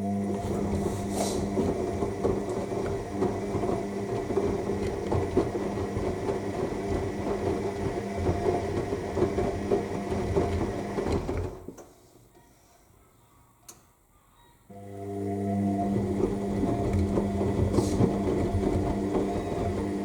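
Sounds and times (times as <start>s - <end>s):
washing machine motor humming: 0.0s - 11.7s, 14.7s - 20.0s
laundry and water sloshing: 0.1s - 11.5s.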